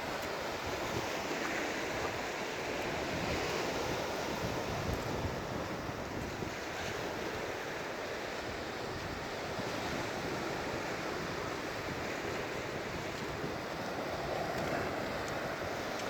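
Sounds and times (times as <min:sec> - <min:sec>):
surf breaking on a beach: 0:00.0 - 0:16.0
wind buffeting microphone: 0:00.0 - 0:16.0.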